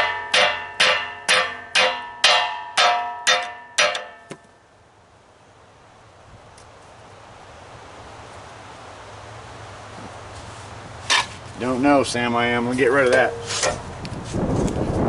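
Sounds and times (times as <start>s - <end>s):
hammer striking metal: 0.0s - 4.4s, 13.1s - 13.8s.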